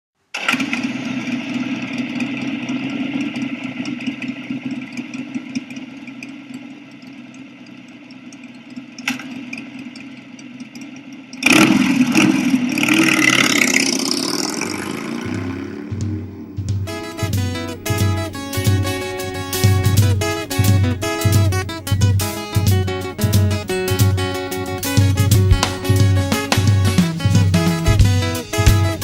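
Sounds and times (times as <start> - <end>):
motorcycle engine revving: 11.4 - 29.0
motorcycle engine idling: 12.2 - 29.0.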